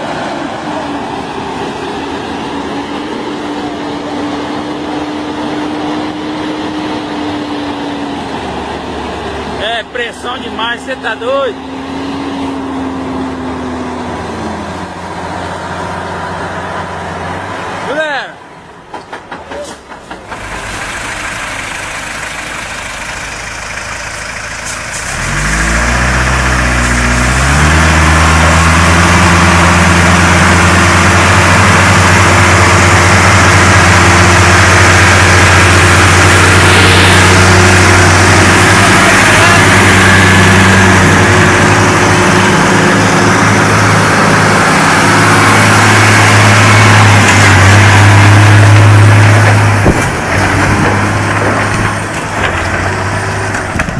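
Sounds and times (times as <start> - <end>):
vehicle engine revving high: 20.2 - 53.8
dense rushing noise: 20.2 - 53.9.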